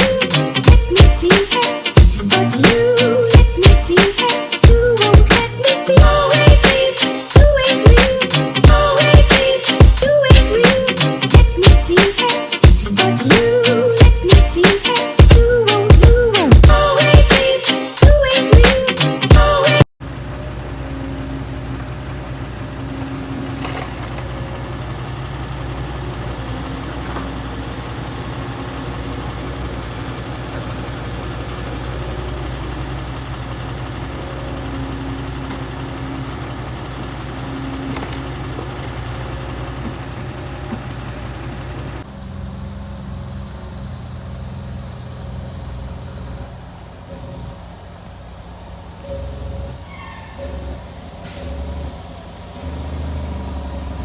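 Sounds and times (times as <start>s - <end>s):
truck diesel engine running: 0.0s - 54.0s.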